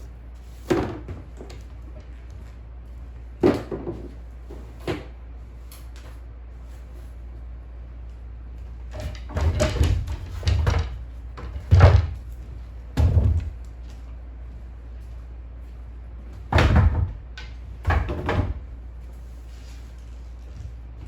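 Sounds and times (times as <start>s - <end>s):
household knocks and bumps: 0.6s - 2.2s, 3.4s - 5.2s, 8.9s - 14.0s, 16.3s - 18.9s.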